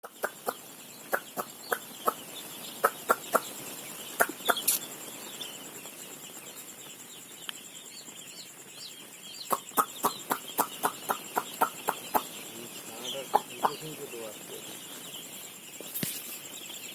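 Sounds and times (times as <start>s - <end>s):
chicks peeping: 0.0s - 16.9s.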